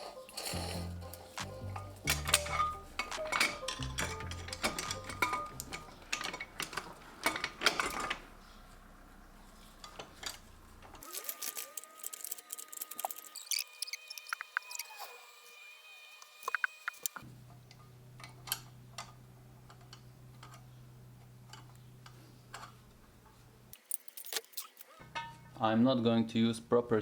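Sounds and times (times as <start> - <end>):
background music: 0.0 - 6.5
metal parts clinking and clanking: 0.0 - 8.4, 9.8 - 14.8, 18.2 - 20.7, 21.5 - 25.6.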